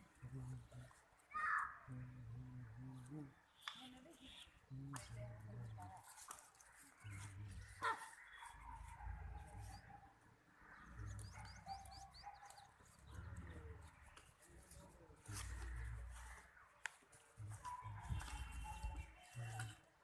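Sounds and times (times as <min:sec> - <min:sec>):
faint bird chirps: 0:06.6 - 0:14.5, 0:17.4 - 0:20.0.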